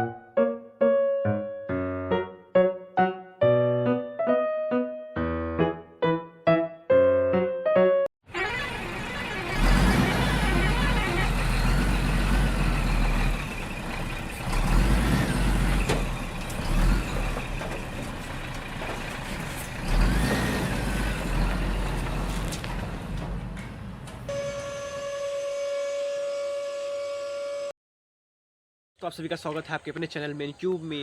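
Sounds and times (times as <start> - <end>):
heavy vehicle engine rumbling: 8.3 - 25.2.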